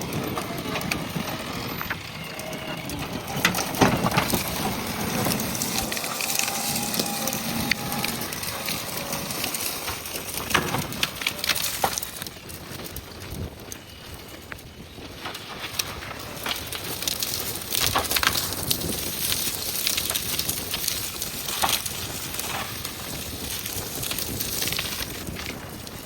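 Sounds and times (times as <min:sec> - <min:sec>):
backhoe loader working: 0:00.0 - 0:26.0
branches crackling and snapping: 0:00.0 - 0:26.0.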